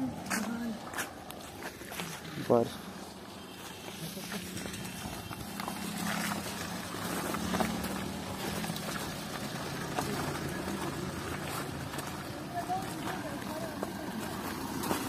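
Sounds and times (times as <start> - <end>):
footsteps on slushy ground: 0.0 - 15.0
car engine running: 4.5 - 15.0.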